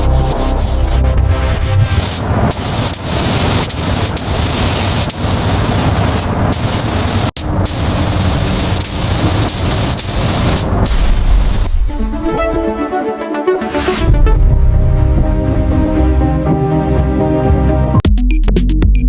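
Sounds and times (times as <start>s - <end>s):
spraying hiss: 2.0s - 11.7s.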